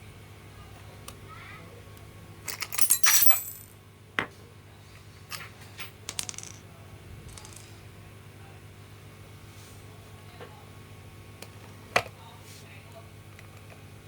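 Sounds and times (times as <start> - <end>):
small metal parts clinking: 2.5 - 3.7, 7.3 - 7.8.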